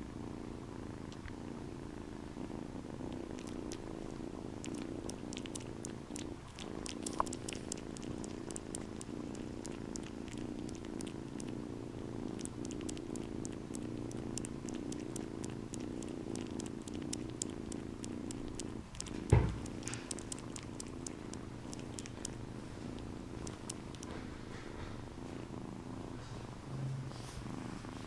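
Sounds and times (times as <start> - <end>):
kitten purring: 0.0 - 28.0
thump: 19.3 - 19.6.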